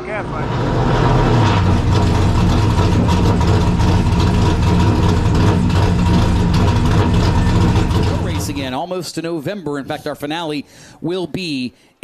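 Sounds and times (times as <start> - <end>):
race car engines rumbling: 0.0 - 8.9.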